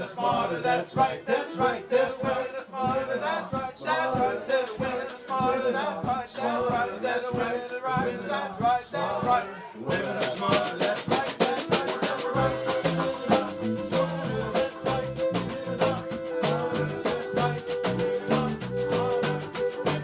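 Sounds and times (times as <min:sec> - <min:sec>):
men singing: 0:00.0 - 0:20.0
calypso band playing: 0:09.9 - 0:20.0
hand percussion: 0:09.9 - 0:20.0.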